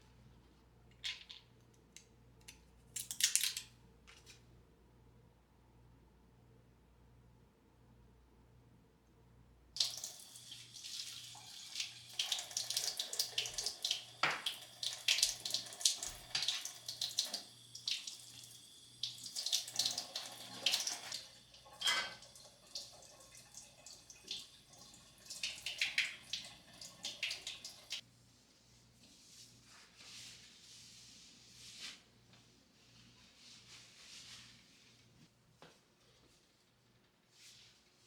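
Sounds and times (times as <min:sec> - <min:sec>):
tap water running into sink: 0:09.8 - 0:28.0.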